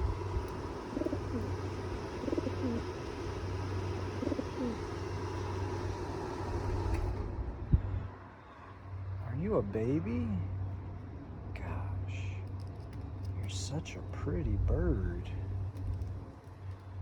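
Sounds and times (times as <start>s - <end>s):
pigeon cooing: 0.0s - 5.6s
steady low hum: 0.0s - 17.0s.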